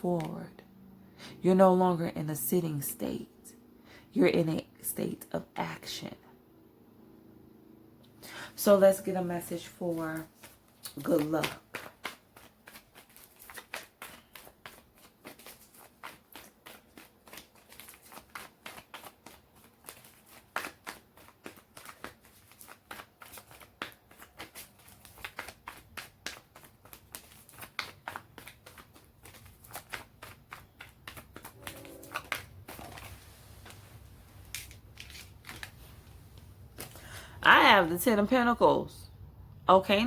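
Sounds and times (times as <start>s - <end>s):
cards being shuffled by hand: 9.6s - 37.2s.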